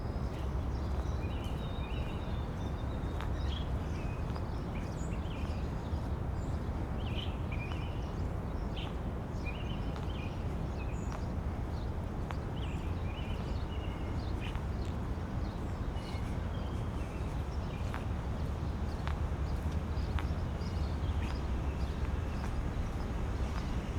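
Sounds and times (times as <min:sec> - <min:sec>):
small birds chirping: 0:00.3 - 0:23.9
footsteps on pavement: 0:08.7 - 0:23.9.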